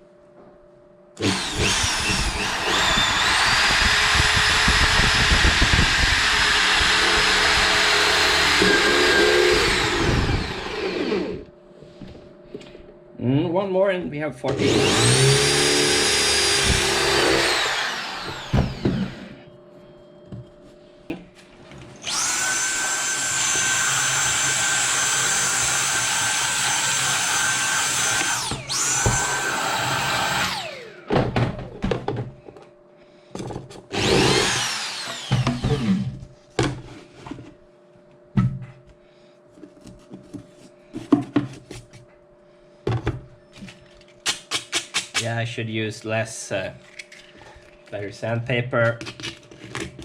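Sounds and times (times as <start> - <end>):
power drill whining: 1.2 - 11.5, 14.6 - 19.5, 22.0 - 31.2, 33.9 - 36.2.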